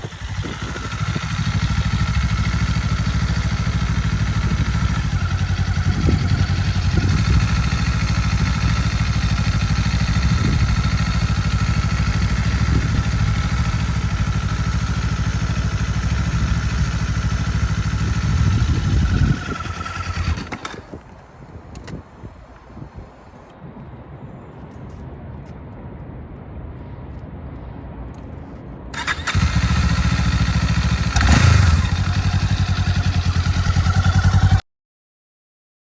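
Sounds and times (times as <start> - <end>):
motorcycle engine running: 0.0 - 21.0, 29.0 - 34.6.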